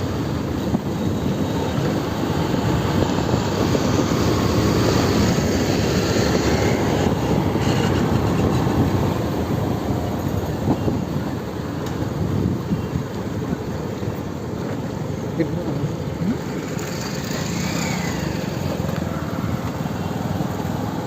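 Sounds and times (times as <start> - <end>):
moving motorcycle rushing: 0.0 - 13.6, 14.2 - 21.0
wind buffeting microphone: 0.0 - 14.6.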